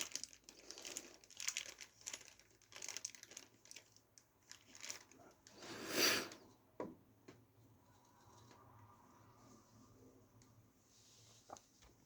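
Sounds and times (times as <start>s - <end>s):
plastic rustling and crinkling: 0.0s - 6.4s.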